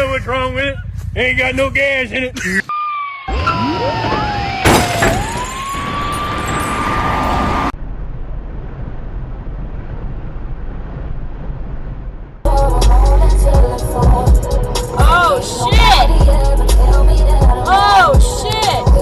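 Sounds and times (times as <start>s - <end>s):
low road noise: 0.0s - 19.0s
crash impact with shattering: 4.6s - 7.1s.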